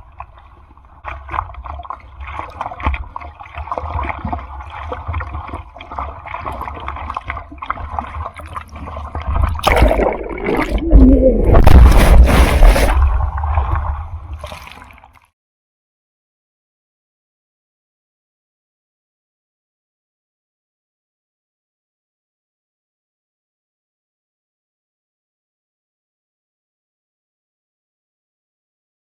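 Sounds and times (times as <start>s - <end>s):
churning water with low rumble: 0.0s - 15.3s
seawater sloshing and gurgling: 0.0s - 15.3s.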